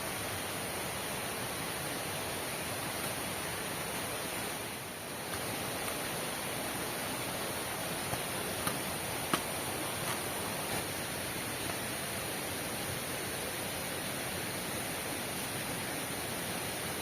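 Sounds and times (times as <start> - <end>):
heavy rain falling: 1.0 - 13.1
sharp taps: 8.1 - 10.8.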